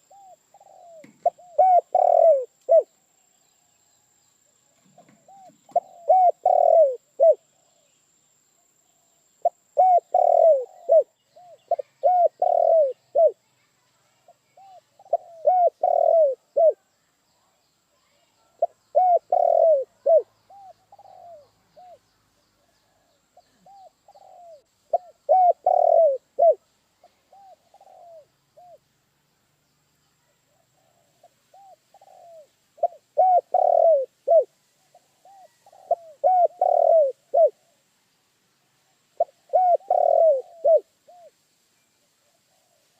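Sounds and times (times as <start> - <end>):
dove cooing: 0.0 - 2.9, 4.9 - 7.9, 9.4 - 13.4, 14.6 - 16.9, 18.6 - 22.0, 22.9 - 28.8, 30.5 - 37.8, 39.2 - 41.4
faint dove coos: 0.0 - 2.9, 4.9 - 7.9, 8.8 - 13.5, 14.2 - 16.9, 18.1 - 28.8, 30.2 - 37.9, 38.8 - 41.4.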